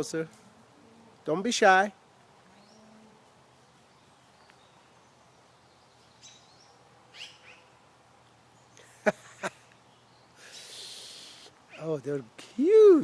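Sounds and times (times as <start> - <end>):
faint bird chirps: 3.8 - 7.8.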